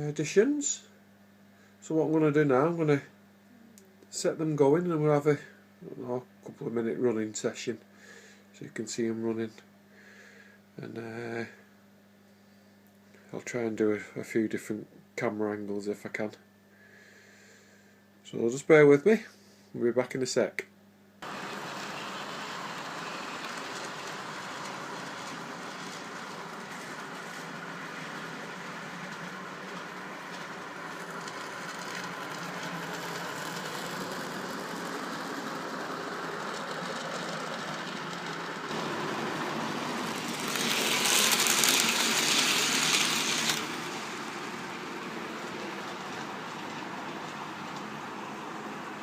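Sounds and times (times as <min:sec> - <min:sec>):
model train motors whirring: 0:21.2 - 0:49.0.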